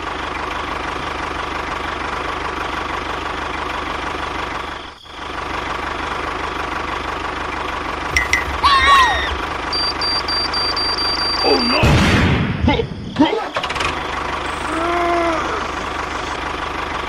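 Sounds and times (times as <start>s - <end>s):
small motor machine running: 13.8s - 17.0s.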